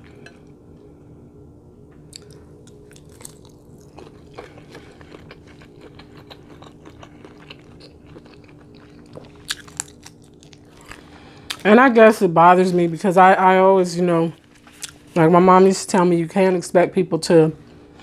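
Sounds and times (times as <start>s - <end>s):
chewing with wet mouth clicks: 2.1s - 11.6s.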